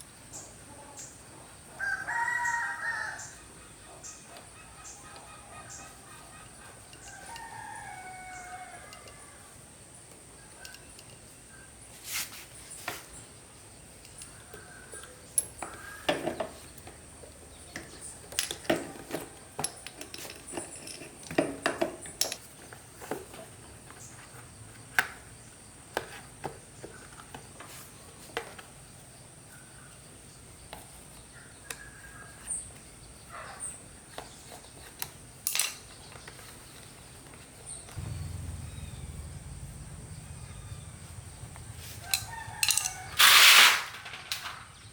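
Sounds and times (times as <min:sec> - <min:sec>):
metal tools clinking: 0:18.3 - 0:22.5, 0:42.1 - 0:44.8
low hum: 0:38.0 - 0:44.7.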